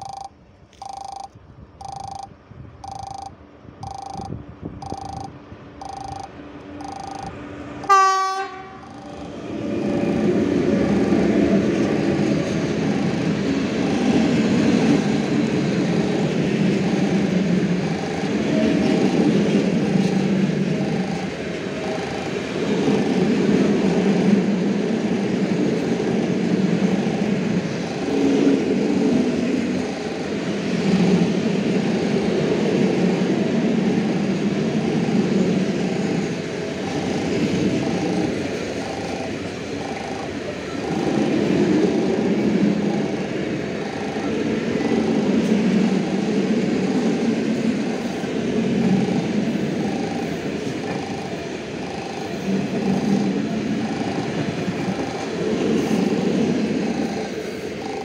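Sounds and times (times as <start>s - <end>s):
train wheels rumbling on rails: 5.8s - 58.0s
train horn blast: 7.8s - 8.8s.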